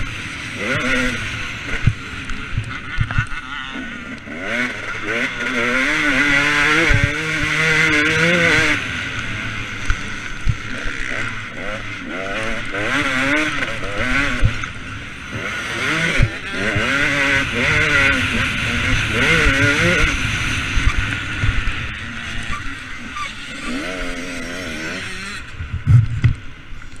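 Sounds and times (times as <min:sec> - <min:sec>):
motocross engine revving: 0:00.0 - 0:26.2
low thumps: 0:25.6 - 0:26.5.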